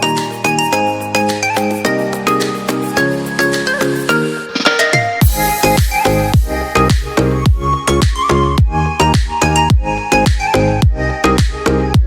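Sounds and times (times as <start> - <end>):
electronic dance music: 0.0 - 8.2.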